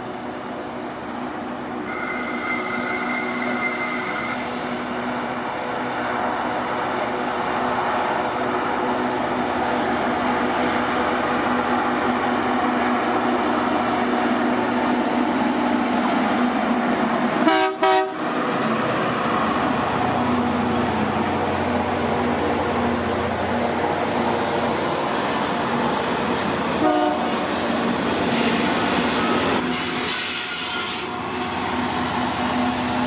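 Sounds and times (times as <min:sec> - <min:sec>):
train rumbling past: 0:00.0 - 0:33.0
train horn toots: 0:01.8 - 0:04.6, 0:17.4 - 0:18.2, 0:26.8 - 0:27.4.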